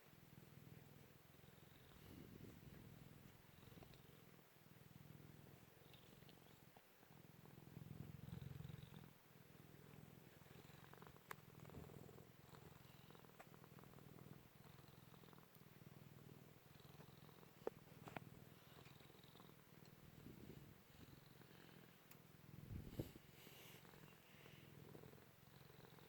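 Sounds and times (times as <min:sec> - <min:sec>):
cat purring: 0:00.0 - 0:26.0.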